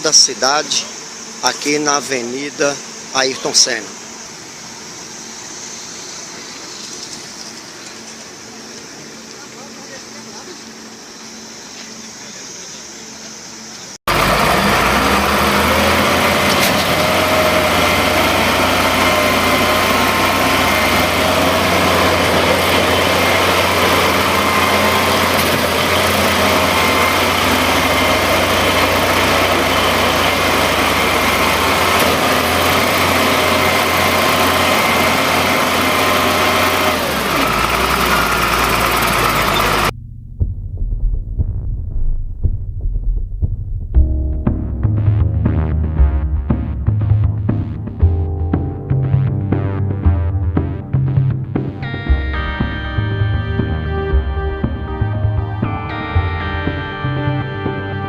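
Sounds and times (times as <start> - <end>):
large engine running: 14.1 - 58.0.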